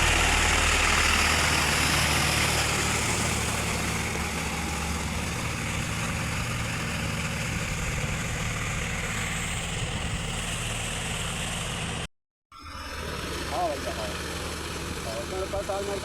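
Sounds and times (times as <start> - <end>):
rotavator churning flooded field: 0.0 - 11.6, 12.7 - 16.0
tractor diesel engine running: 0.0 - 16.0.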